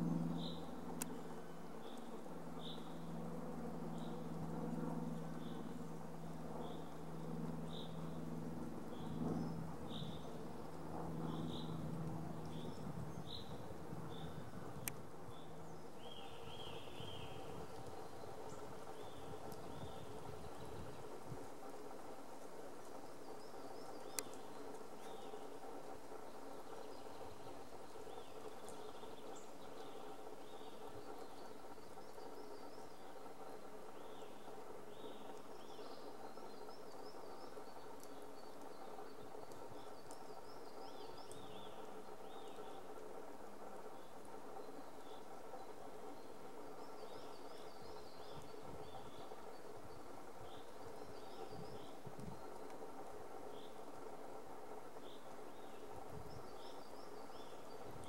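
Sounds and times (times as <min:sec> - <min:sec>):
steady hiss: 0:14.4 - 0:58.0.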